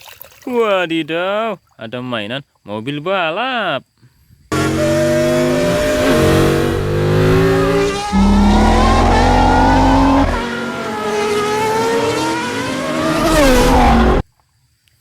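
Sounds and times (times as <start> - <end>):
race car engine revving: 4.5 - 14.2.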